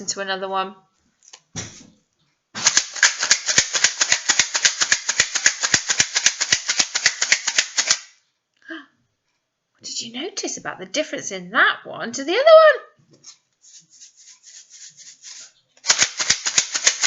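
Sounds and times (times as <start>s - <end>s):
bottle shaker rattling: 13.2s - 17.0s.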